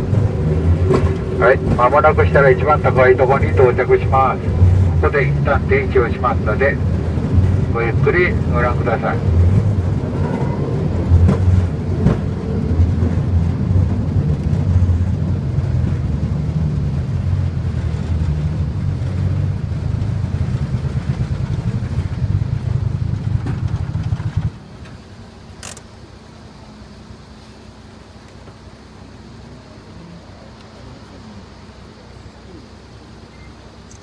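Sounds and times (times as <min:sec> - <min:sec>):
rail cart rumbling on track: 0:00.0 - 0:34.0
sharp click: 0:25.6 - 0:25.9.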